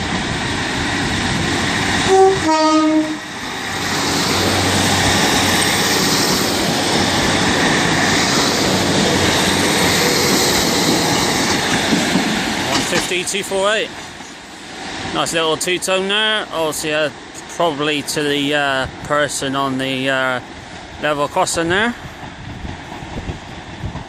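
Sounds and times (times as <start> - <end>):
diesel train engines and wheels: 0.0 - 24.0
train two-tone horn: 2.0 - 3.3.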